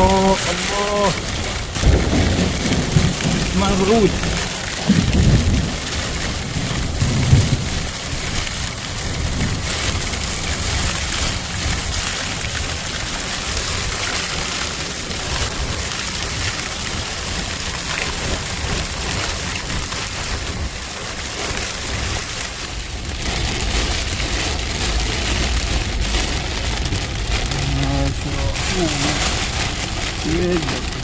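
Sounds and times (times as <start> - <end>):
heavy rain falling: 0.0 - 31.0
low rumble: 15.0 - 31.0.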